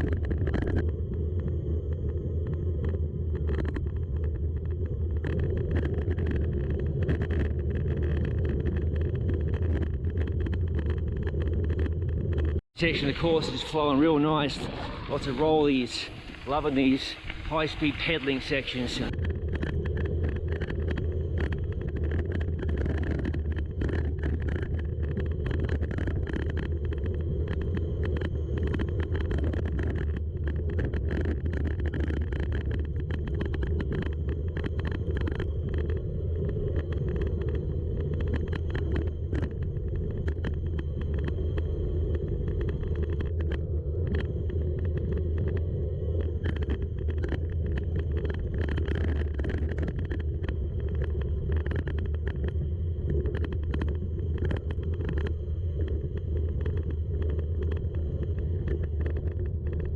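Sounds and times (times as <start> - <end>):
wind on microphone: 0.0 - 59.9
tyres rumbling on gravel: 5.3 - 35.5.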